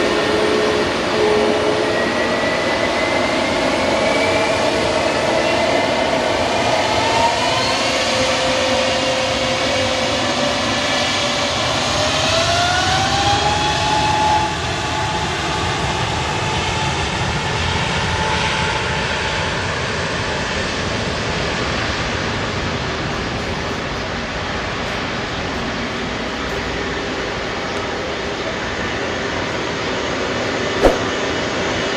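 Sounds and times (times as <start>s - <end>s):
jet engines rushing and whining: 0.0s - 31.9s.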